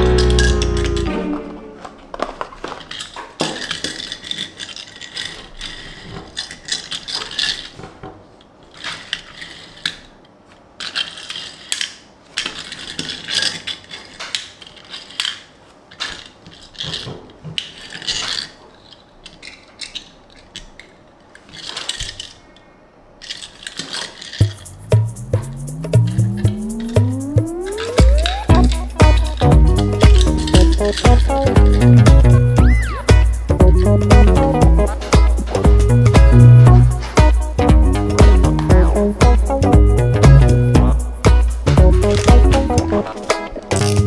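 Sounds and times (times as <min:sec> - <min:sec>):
toy car and cardboard box handled: 0:00.0 - 0:24.7.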